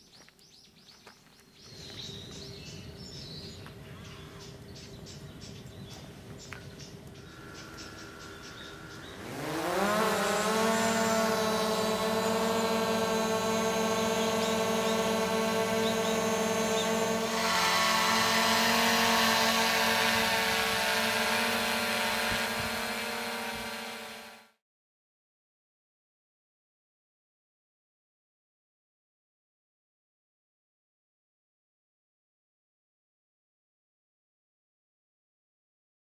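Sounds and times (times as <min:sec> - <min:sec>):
drone propellers buzzing: 0:02.2 - 0:24.6.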